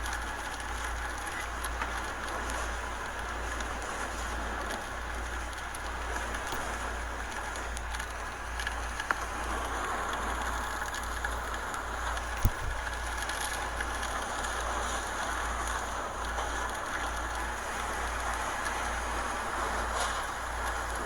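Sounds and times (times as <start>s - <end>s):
driving rain: 0.0s - 21.0s
hurricane wind: 0.0s - 21.0s
small click: 12.4s - 12.7s.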